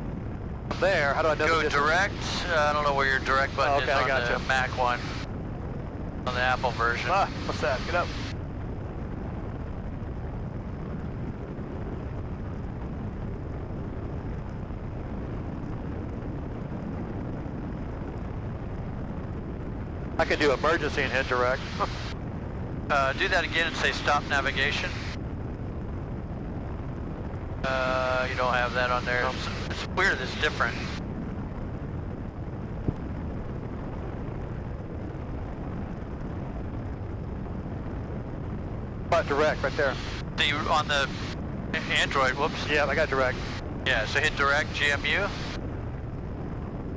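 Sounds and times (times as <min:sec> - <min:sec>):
airplane engine drone in cabin: 0:00.0 - 0:46.9
airflow noise: 0:20.1 - 0:46.9.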